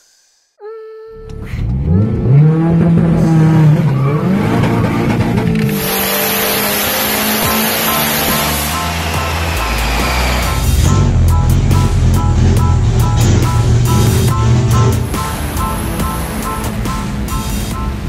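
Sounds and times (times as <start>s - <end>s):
turbo engine accelerating: 1.2s - 18.0s
loud steady rush of noise: 5.7s - 11.3s.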